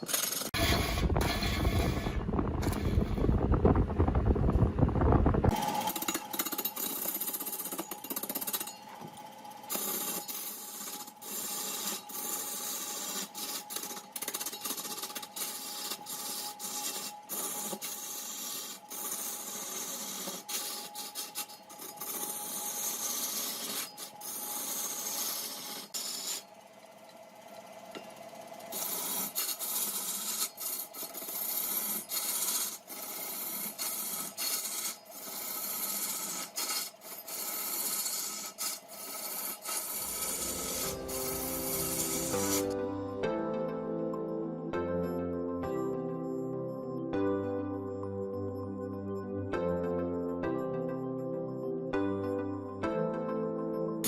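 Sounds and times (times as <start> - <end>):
lathe tool scraping wood: 0.0 - 3.5, 5.5 - 26.6, 28.6 - 43.1
lathe motor hum: 37.1 - 43.0.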